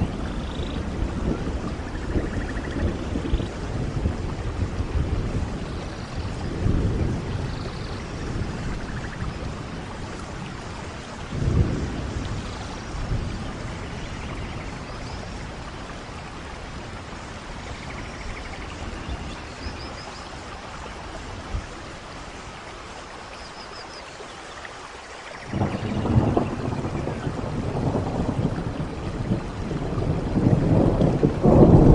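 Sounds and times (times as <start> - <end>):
thunder rumbling: 0.0 - 22.0, 25.4 - 31.9
steady rainfall: 0.0 - 31.9.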